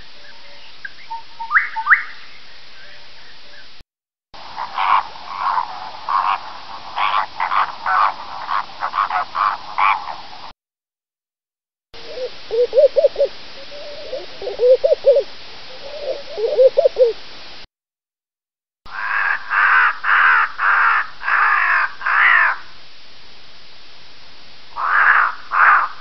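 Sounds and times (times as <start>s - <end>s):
crow cawing: 4.5s - 10.2s, 18.9s - 22.7s, 24.8s - 26.0s
dove cooing: 4.5s - 10.2s, 12.0s - 17.2s.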